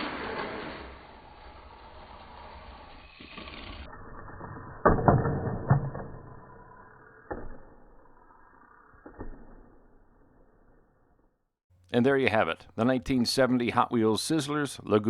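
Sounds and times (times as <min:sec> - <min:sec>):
toy car crashing knocks: 0:00.0 - 0:02.1, 0:02.8 - 0:08.1.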